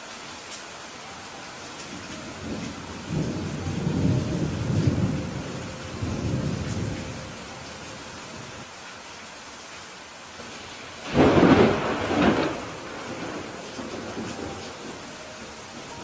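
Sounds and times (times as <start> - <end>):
steady rainfall: 0.0 - 16.0
thunder rumbling: 1.9 - 7.8, 11.0 - 16.0.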